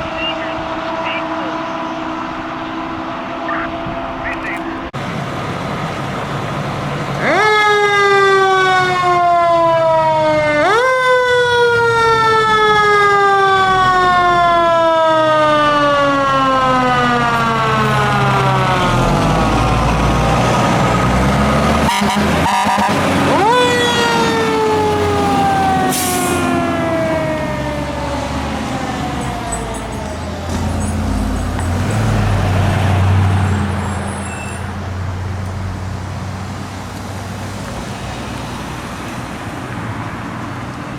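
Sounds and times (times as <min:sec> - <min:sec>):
truck engine rumble: 0:00.0 - 0:40.9.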